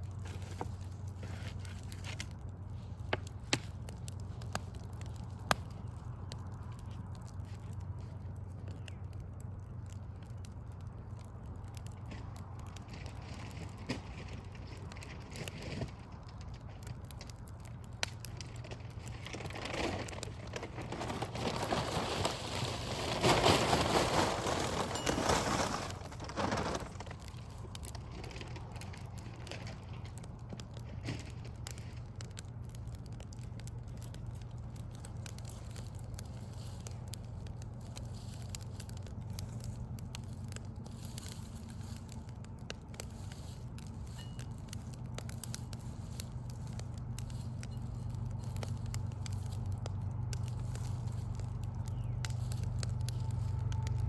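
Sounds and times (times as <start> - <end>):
low hum: 0.0 - 54.0
wood fire crackling: 0.0 - 54.0.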